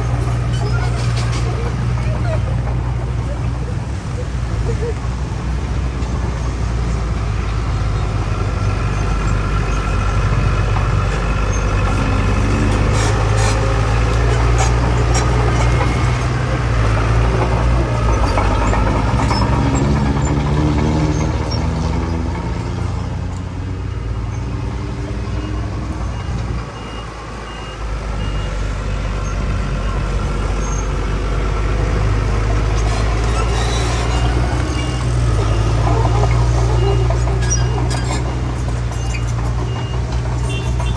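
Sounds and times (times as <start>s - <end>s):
heavy machinery engines working: 0.0s - 40.9s
faint reversing alarm beep: 25.4s - 29.2s.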